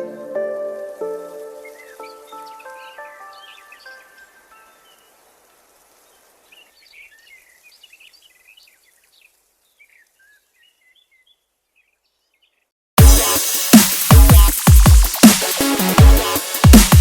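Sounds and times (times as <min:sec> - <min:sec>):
background hiss: 0:00.0 - 0:12.5, 0:13.2 - 0:17.0
small birds chirping: 0:01.0 - 0:12.8.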